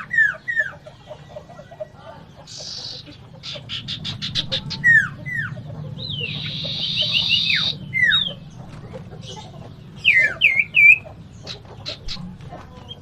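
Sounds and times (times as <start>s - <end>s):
steady low hum: 0.0s - 13.0s
curling whistled bird notes: 3.7s - 8.4s.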